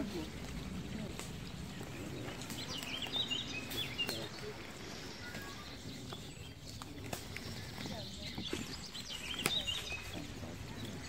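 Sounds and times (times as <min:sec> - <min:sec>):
faint murmuring voices: 0:00.0 - 0:11.0
small bird chirping: 0:01.5 - 0:11.0.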